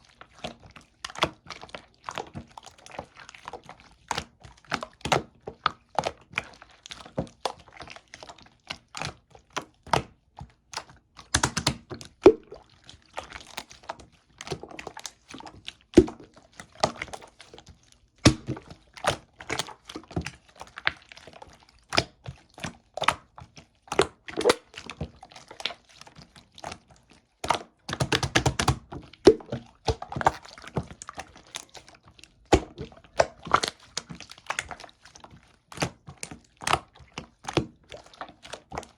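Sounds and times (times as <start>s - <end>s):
slime popping and clicking: 11.3s - 12.6s.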